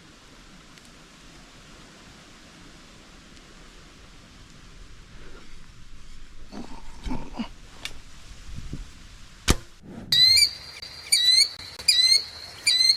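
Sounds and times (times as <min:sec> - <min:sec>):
sharp crack: 0:09.4 - 0:10.1
bird harsh rising calls: 0:10.1 - 0:12.9.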